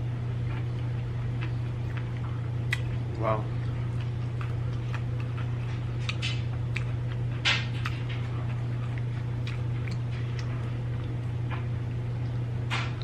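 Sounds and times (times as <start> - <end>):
steady low hum: 0.0 - 13.0
chewing crunches: 0.4 - 12.4
wet mouth clicks: 2.7 - 2.9.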